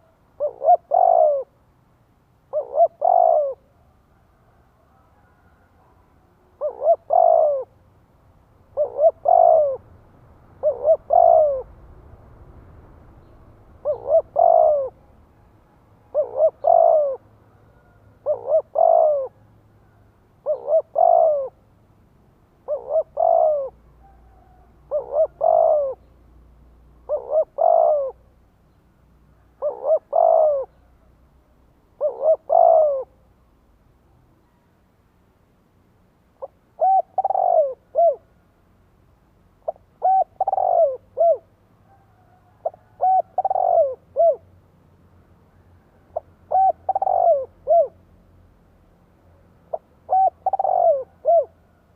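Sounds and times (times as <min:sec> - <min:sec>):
dove cooing: 0:00.0 - 0:01.6, 0:02.4 - 0:07.8, 0:08.7 - 0:12.2, 0:13.2 - 0:21.6, 0:22.6 - 0:26.1, 0:27.0 - 0:28.4, 0:29.3 - 0:31.1, 0:31.9 - 0:33.2, 0:36.4 - 0:38.3, 0:39.6 - 0:44.5, 0:45.8 - 0:48.0, 0:49.7 - 0:51.8.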